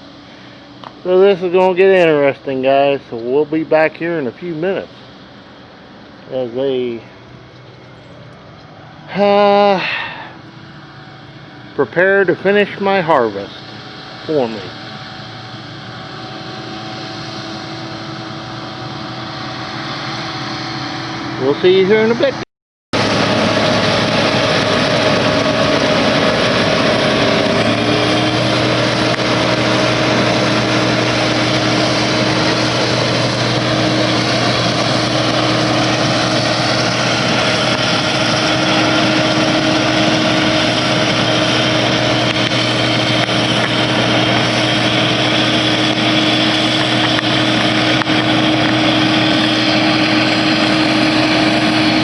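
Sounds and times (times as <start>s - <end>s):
engine running: 0.0s - 22.4s, 23.0s - 52.0s.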